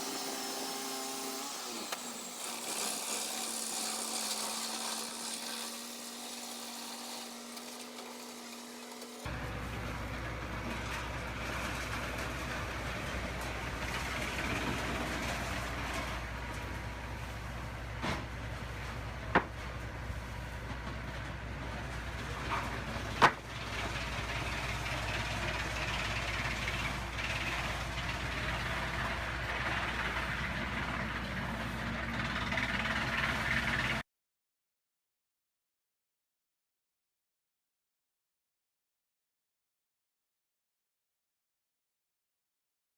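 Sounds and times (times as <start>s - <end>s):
bandsaw mill running: 0.0s - 9.6s, 21.5s - 34.0s.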